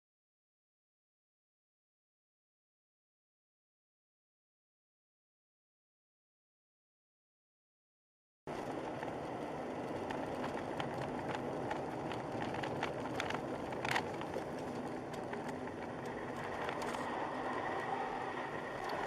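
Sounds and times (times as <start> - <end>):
car road and engine noise: 8.5 - 19.0.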